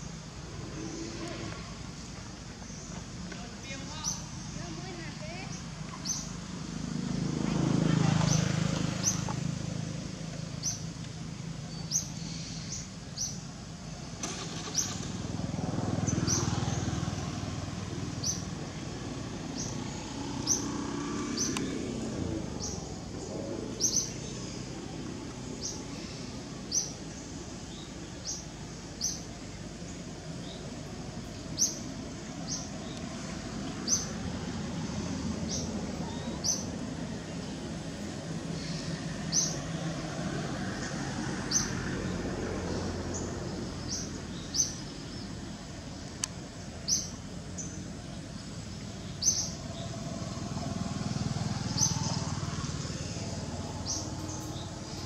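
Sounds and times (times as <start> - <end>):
small bird chirping: 0.0 - 6.5, 14.7 - 39.9, 43.1 - 55.0.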